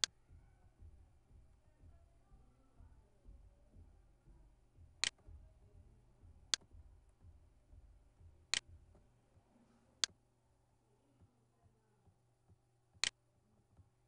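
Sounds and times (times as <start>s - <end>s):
faint low hum: 0.0s - 14.0s
computer mouse clicking: 5.0s - 5.2s.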